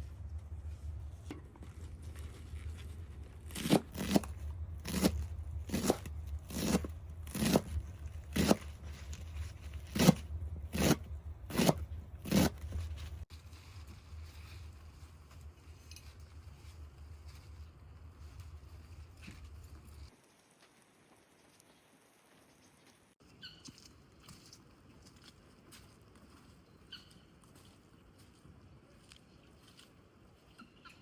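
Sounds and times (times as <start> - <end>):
steady low hum: 0.0 - 20.1
crisp crunching strokes: 0.0 - 20.8.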